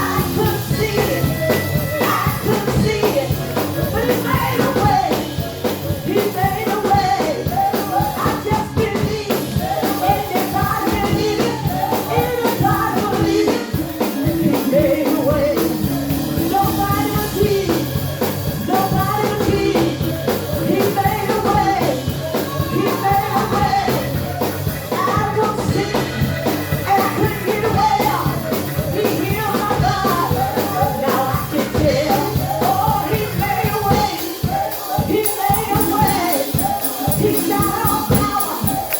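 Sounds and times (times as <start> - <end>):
band playing praise music: 0.0 - 38.9
drum kit steady beat: 0.0 - 38.9
voices singing: 0.0 - 38.9.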